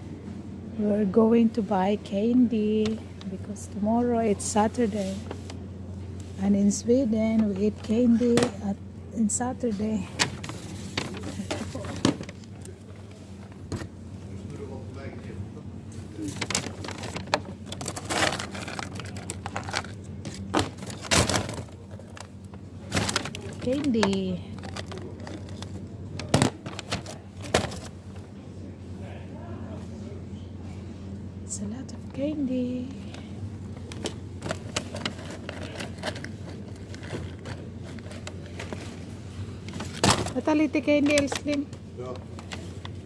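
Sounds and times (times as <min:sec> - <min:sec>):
steady low hum: 0:00.0 - 0:43.0
plastic packaging crinkling: 0:10.2 - 0:12.7, 0:16.2 - 0:28.0, 0:33.9 - 0:39.1.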